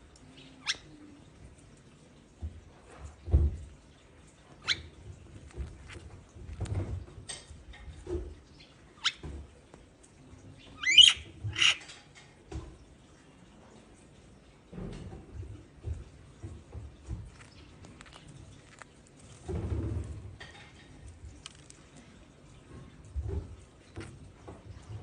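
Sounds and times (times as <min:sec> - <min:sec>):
soft rustles and bumps: 0:02.3 - 0:08.6, 0:14.7 - 0:25.0
lovebirds squeaky chirps: 0:10.6 - 0:11.8.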